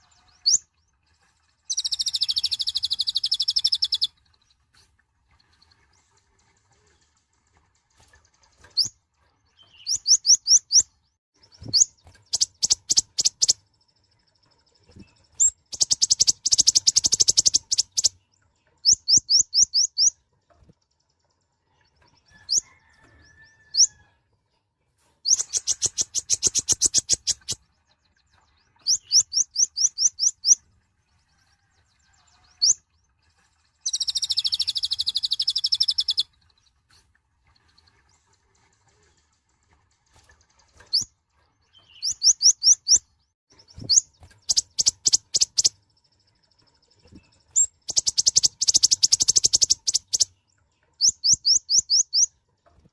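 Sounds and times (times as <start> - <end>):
small bird high chirping: 0.0 - 0.7, 1.6 - 4.5, 9.5 - 24.1, 25.2 - 32.9, 33.8 - 36.6, 40.8 - 52.4
fast continuous bird trill: 0.0 - 4.7, 5.3 - 24.1, 25.2 - 52.9.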